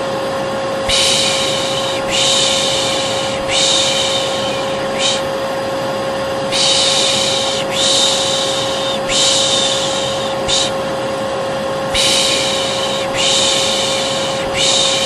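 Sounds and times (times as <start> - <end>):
hair dryer running: 0.0 - 15.0
person shushing: 0.8 - 5.4, 6.5 - 10.8, 11.9 - 15.0.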